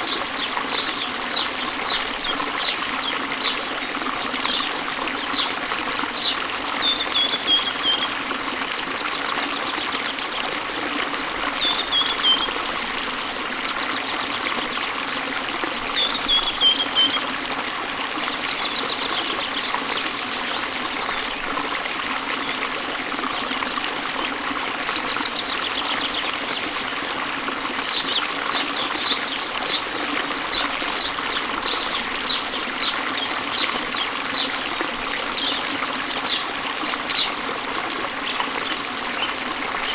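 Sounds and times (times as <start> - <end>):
birds singing: 0.0 - 8.2, 11.6 - 12.6, 15.9 - 17.3, 18.3 - 21.5, 27.8 - 37.4
waterfall running: 0.0 - 39.9.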